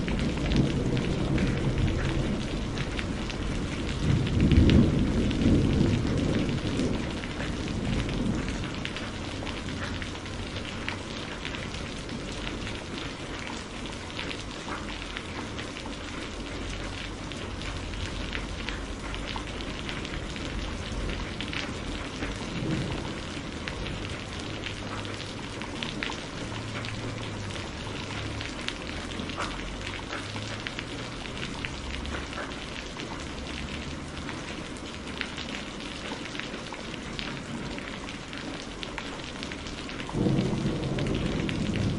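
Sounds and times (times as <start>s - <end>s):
low thunder rumble: 0.0s - 13.8s, 15.3s - 31.0s, 40.0s - 41.9s
steady rain falling: 0.0s - 41.9s.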